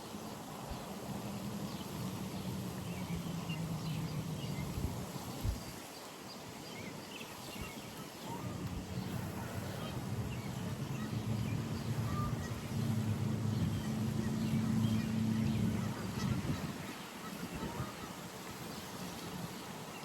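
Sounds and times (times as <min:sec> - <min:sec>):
engine hum with tones: 0:08.7 - 0:16.7.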